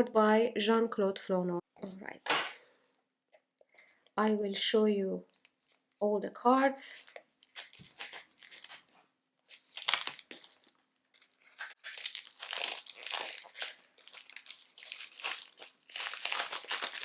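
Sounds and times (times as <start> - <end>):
plastic wrapping crinkling and tearing: 7.0 - 17.0.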